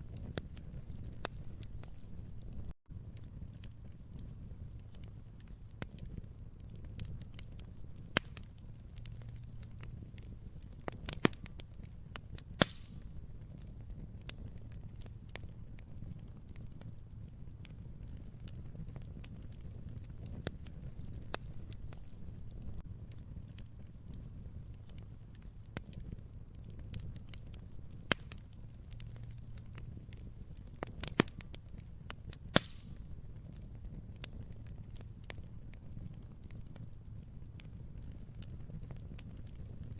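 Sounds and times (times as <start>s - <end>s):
sharp pops of fire: 0.0s - 39.9s
wood fire crackling: 0.0s - 39.9s.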